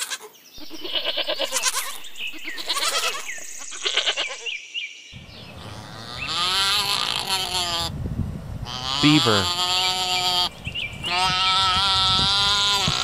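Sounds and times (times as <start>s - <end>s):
sheep bleating: 0.0s - 4.5s, 5.6s - 7.9s, 8.6s - 10.5s, 11.1s - 13.0s
long wavering animal call: 0.6s - 4.5s, 5.4s - 8.0s.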